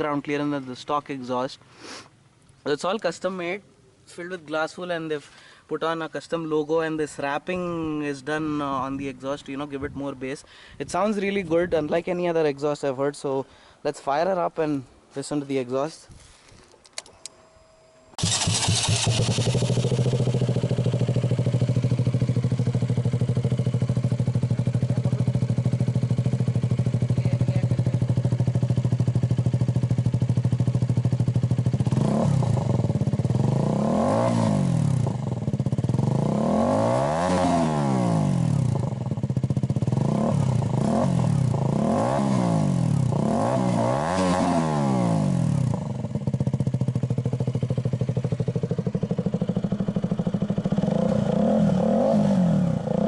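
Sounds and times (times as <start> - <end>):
motorcycle engine idling and revving: 18.2 - 53.0.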